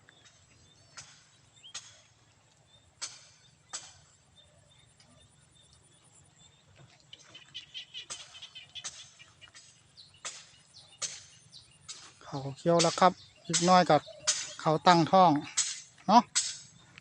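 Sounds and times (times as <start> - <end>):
faint outdoor ambience: 0.0 - 17.0
sharp taps: 12.8 - 14.7.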